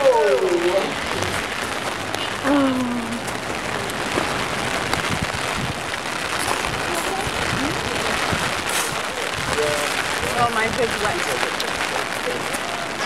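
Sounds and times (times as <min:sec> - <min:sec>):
heavy rain falling: 0:00.0 - 0:13.0
raindrops tapping close by: 0:00.0 - 0:13.0.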